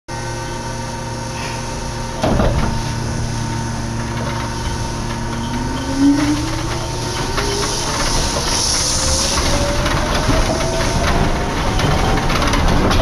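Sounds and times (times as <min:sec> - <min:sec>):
steady running hum: 0:00.1 - 0:13.0
traction motor whine rising: 0:03.0 - 0:13.0.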